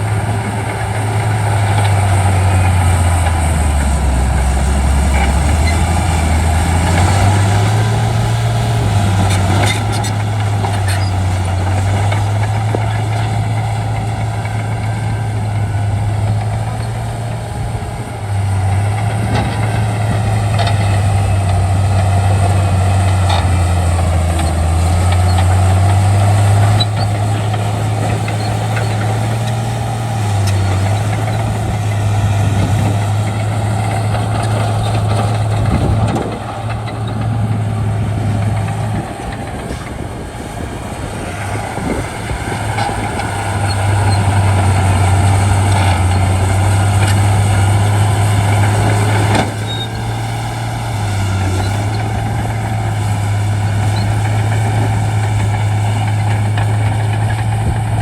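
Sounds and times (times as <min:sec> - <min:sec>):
bulldozer diesel engine working: 0:00.0 - 0:58.0.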